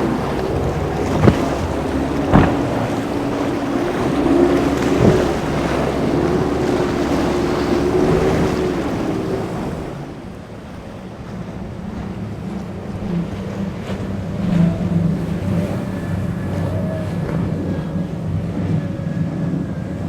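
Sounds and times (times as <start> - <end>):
motorboat engine running: 0.0 - 20.0
waves washing: 0.0 - 20.0
wind buffeting microphone: 0.0 - 20.0
sharp knocks: 1.1 - 3.8.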